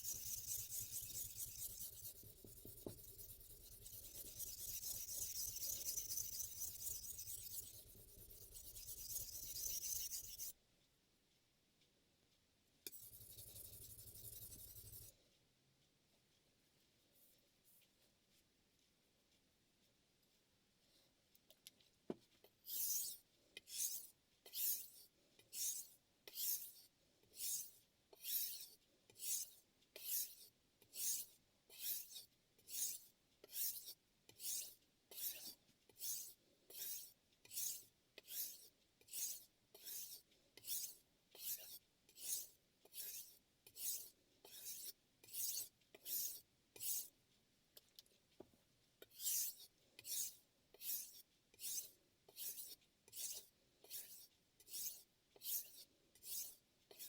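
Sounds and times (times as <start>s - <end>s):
knife rasping on whetstone: 0.0s - 10.5s, 12.9s - 15.1s, 27.4s - 30.4s, 31.0s - 47.1s, 49.1s - 57.0s.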